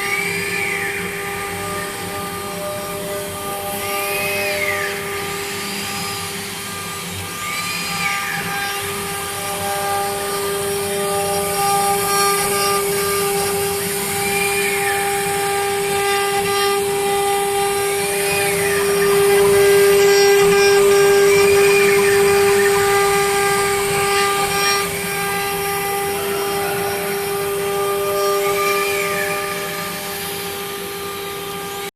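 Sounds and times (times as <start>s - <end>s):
router spindle high whine: 0.0s - 31.9s.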